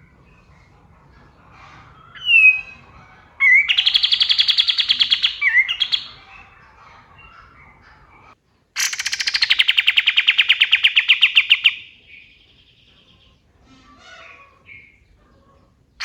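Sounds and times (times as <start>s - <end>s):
faint bird chirps: 0.0s - 16.0s
songbird rattling trill: 3.4s - 6.2s, 8.8s - 13.1s.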